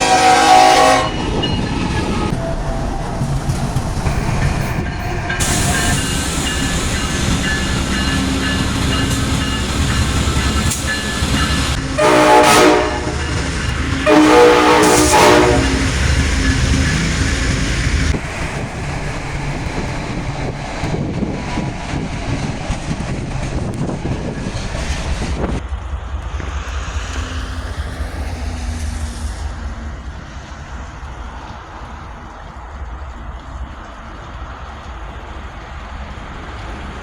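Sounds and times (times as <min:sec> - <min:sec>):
locomotive air horn blasts: 0:00.0 - 0:01.2, 0:11.8 - 0:16.1
freight train rumbling: 0:00.0 - 0:37.0.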